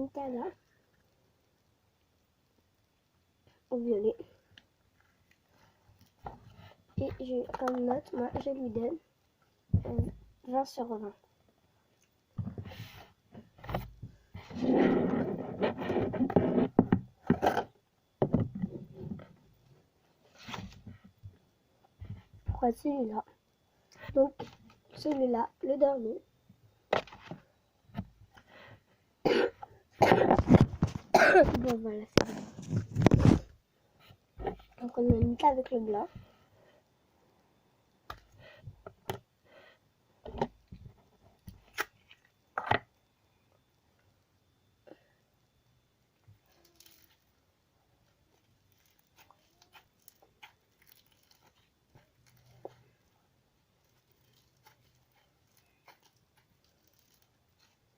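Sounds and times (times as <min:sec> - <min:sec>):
rubbing and scraping of tubs: 0:13.7 - 0:17.7.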